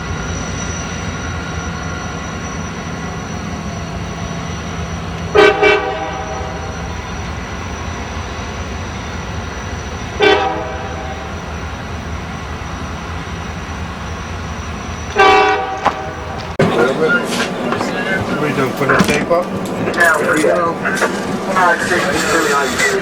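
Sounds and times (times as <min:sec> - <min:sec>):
train rumbling: 0:00.0 - 0:23.0
train horn toots: 0:05.3 - 0:06.7, 0:10.2 - 0:11.3, 0:15.1 - 0:16.8.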